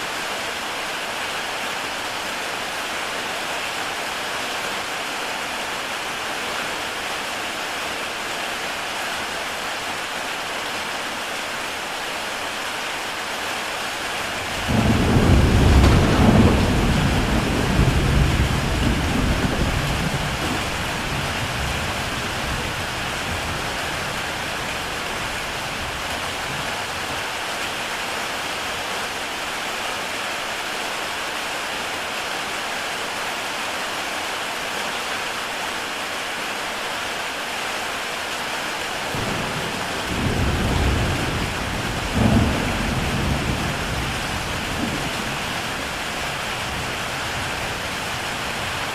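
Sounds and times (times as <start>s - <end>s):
heavy rain on a tile roof: 0.0s - 48.9s
rolling thunder: 14.4s - 26.8s, 39.1s - 48.9s.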